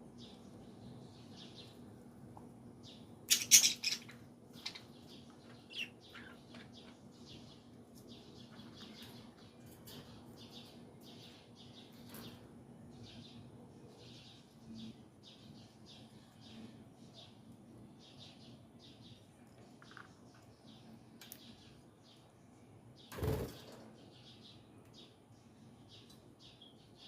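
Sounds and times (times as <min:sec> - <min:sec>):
pet bird chirping: 0:02.8 - 0:12.2, 0:13.0 - 0:22.3.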